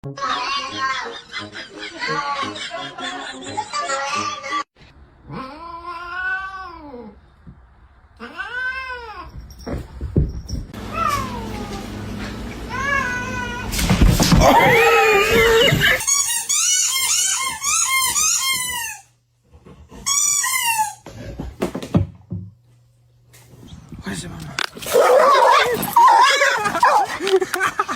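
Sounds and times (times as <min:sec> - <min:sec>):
cats meowing and yowling: 0:05.3 - 0:07.1, 0:08.2 - 0:09.3, 0:10.9 - 0:11.9, 0:14.4 - 0:16.0, 0:24.9 - 0:27.1.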